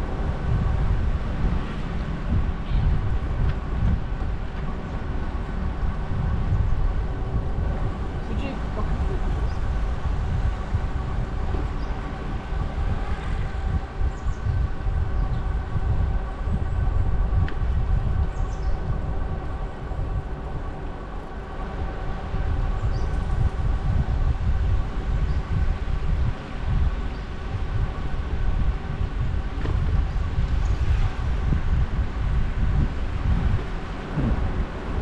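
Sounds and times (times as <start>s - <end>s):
steady whine: 0.0s - 35.0s
wind buffeting microphone: 0.0s - 35.0s.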